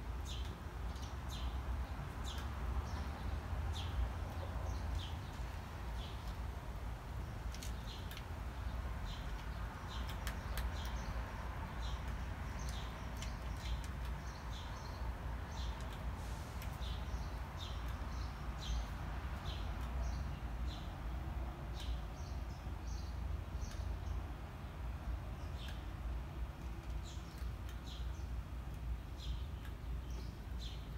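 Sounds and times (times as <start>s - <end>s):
small bird chirping: 0.2s - 6.5s, 7.2s - 16.1s, 16.7s - 24.3s.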